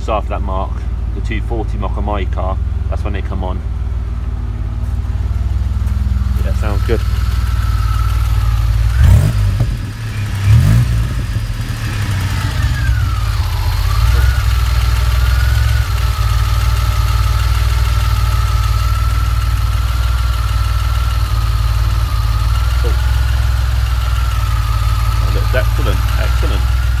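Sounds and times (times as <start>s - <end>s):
car engine revving and idling: 0.0s - 27.0s.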